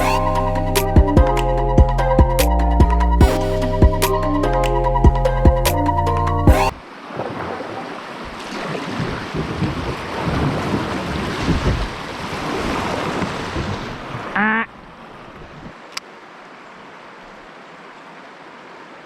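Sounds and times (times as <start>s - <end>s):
rising pitched sound: 0.0s - 6.8s
river water rushing: 6.6s - 19.0s
wind buffeting microphone: 6.7s - 15.8s.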